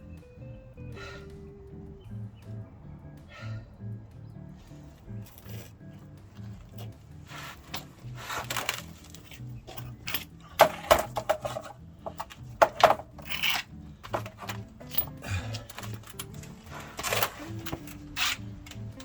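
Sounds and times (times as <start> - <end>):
background music: 0.0 - 19.0
metal tools clinking and clattering: 6.5 - 19.0.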